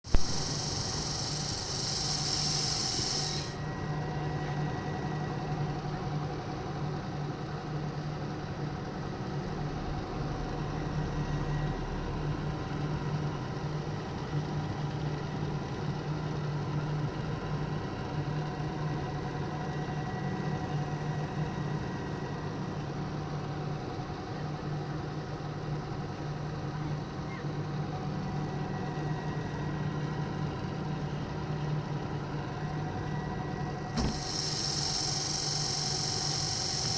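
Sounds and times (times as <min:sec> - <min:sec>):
high hiss: 0:00.1 - 0:03.6, 0:34.0 - 0:36.9
vacuum cleaner humming: 0:00.1 - 0:03.6, 0:34.0 - 0:36.9.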